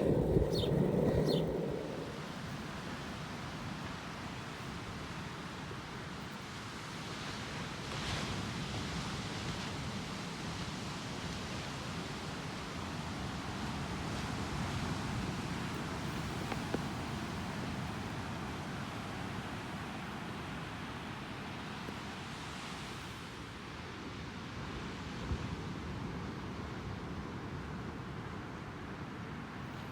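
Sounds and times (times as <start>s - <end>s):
ocean surf: 0.0s - 4.0s
wind: 0.0s - 29.9s.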